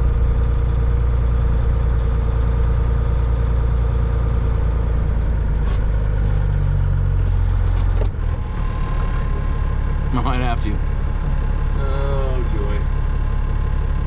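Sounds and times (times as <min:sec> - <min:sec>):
low diesel engine rumble: 0:00.0 - 0:14.0.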